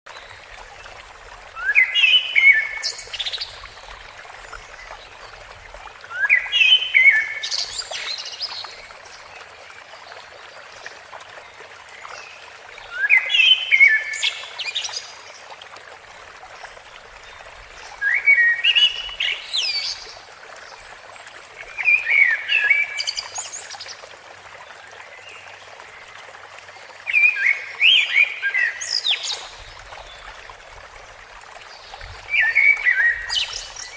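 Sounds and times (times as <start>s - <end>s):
flowing water hiss: 0.1s - 33.9s
songbird singing: 31.7s - 33.9s.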